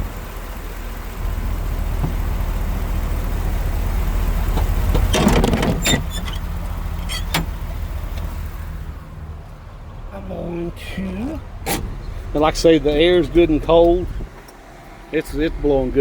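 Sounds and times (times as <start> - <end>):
truck engine idling: 0.0 - 16.0
rattle and knocks: 4.5 - 8.3.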